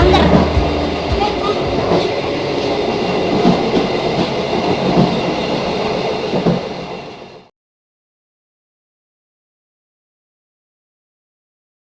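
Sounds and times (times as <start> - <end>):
passenger train rumbling: 0.0 - 7.5.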